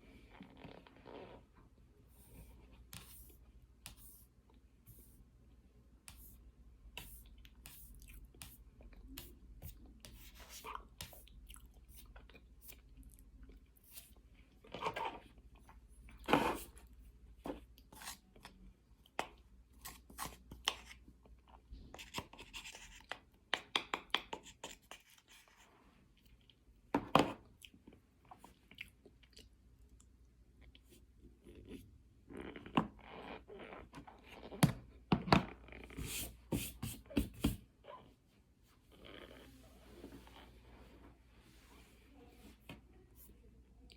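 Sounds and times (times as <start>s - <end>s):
chewing and crunching: 27.4s - 34.6s.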